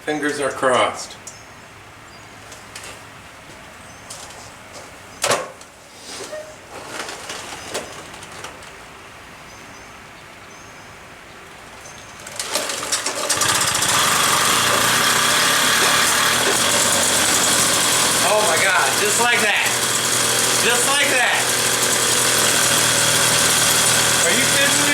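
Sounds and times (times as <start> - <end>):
moped two-stroke engine running: 12.2 - 24.9.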